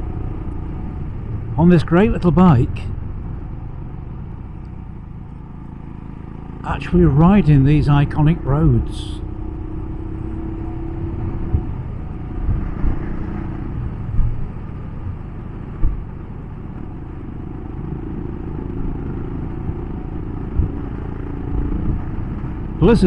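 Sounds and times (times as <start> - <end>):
motorcycle engine cruising: 0.0 - 23.0
wind and road rumble: 0.0 - 23.0.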